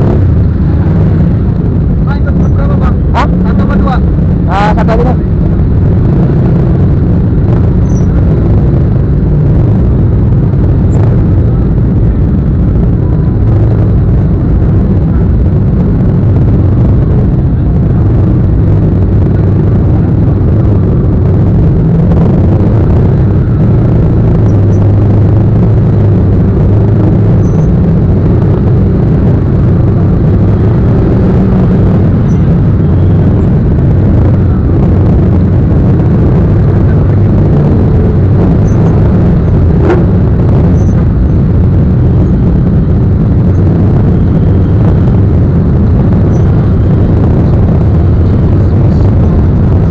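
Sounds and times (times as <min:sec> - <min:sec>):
motorcycle engine rumble: 0:00.0 - 0:49.9.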